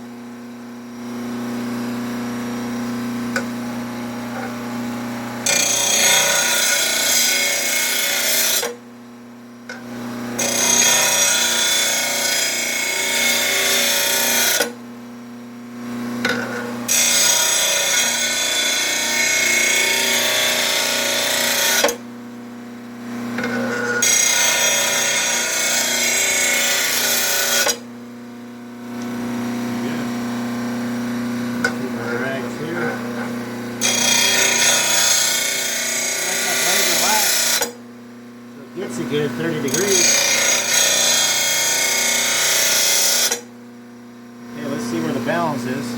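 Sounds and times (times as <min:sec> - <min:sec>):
grinding wheel motor hum: 0:00.8 - 0:08.8, 0:09.5 - 0:14.8, 0:15.9 - 0:22.0, 0:23.0 - 0:27.9, 0:28.6 - 0:43.5
blade grinding on wheel: 0:05.4 - 0:08.7, 0:10.4 - 0:14.7, 0:16.2 - 0:22.0, 0:31.6 - 0:37.8, 0:38.9 - 0:43.5.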